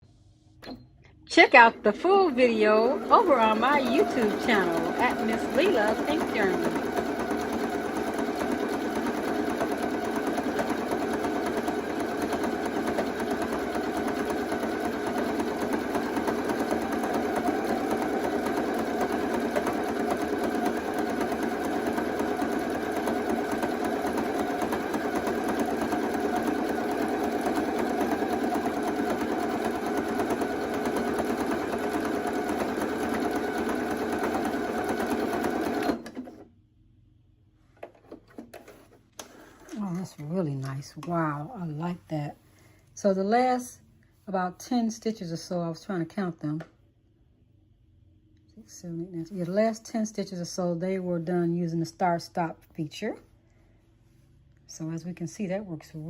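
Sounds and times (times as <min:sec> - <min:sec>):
sewing machine stitching: 0:01.6 - 0:36.4.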